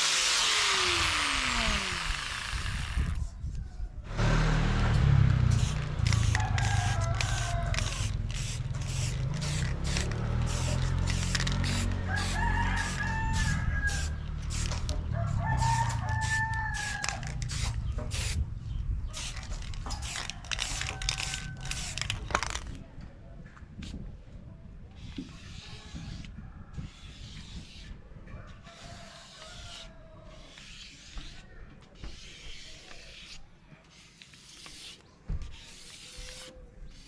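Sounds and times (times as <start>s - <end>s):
low steady rumble: 4.0s - 19.8s
rooster crowing: 6.3s - 8.1s, 12.0s - 14.2s, 15.1s - 17.3s.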